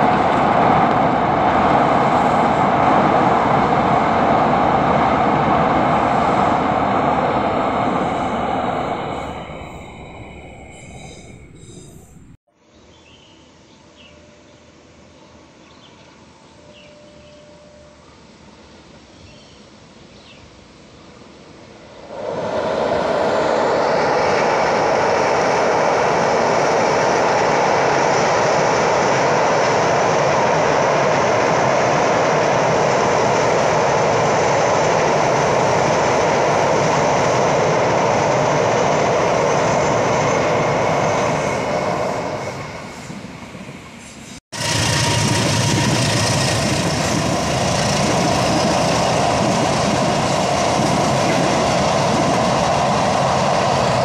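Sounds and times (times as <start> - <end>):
train wheels on rail: 0.0 - 12.4, 14.0 - 54.0.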